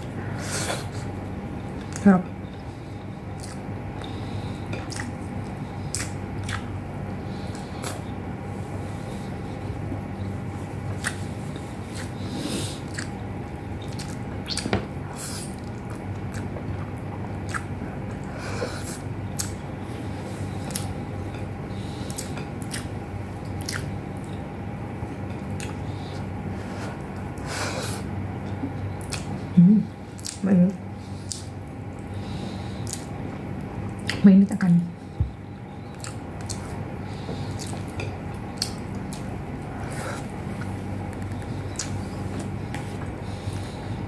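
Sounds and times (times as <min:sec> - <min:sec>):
person chewing food: 0:00.0 - 0:44.0
steady low hum: 0:00.0 - 0:44.0
wet mouth smacks: 0:05.9 - 0:06.7.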